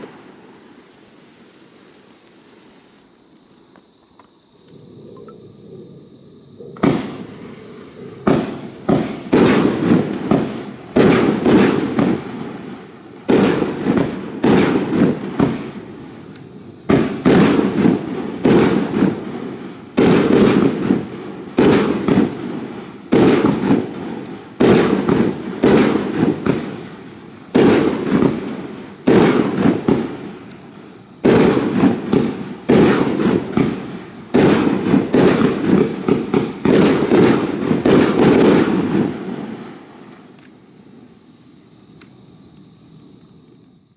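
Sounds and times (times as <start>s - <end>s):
fireworks cake bangs: 6.8s - 7.4s, 8.2s - 40.4s.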